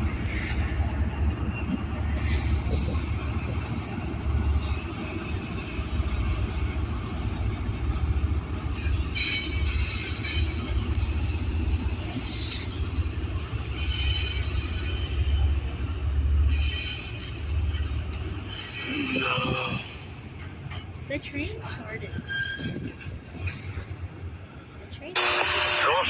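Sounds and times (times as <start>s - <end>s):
steel wheel squeal: 0.0s - 20.0s, 21.6s - 23.8s
freight train rumbling: 0.0s - 26.0s.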